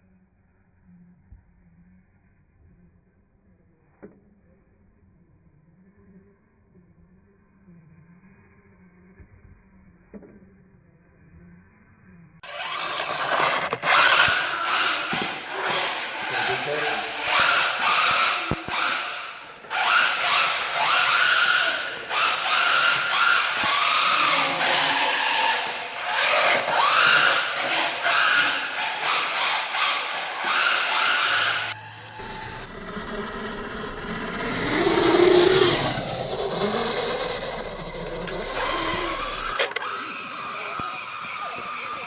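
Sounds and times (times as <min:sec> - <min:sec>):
electric motor whining: 0:12.4 - 0:42.0.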